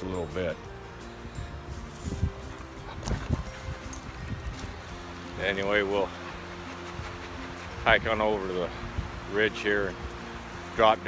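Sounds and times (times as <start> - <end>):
faint background music: 0.0 - 11.0
wind buffeting microphone: 1.4 - 9.4.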